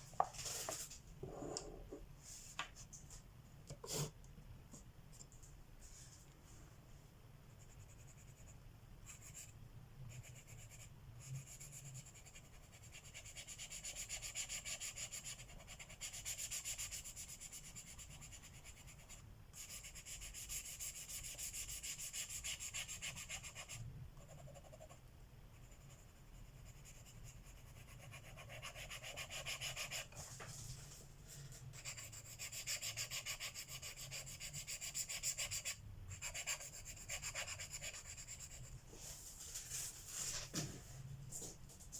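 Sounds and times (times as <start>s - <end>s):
pencil shading on paper: 7.6s - 30.3s, 31.7s - 38.7s.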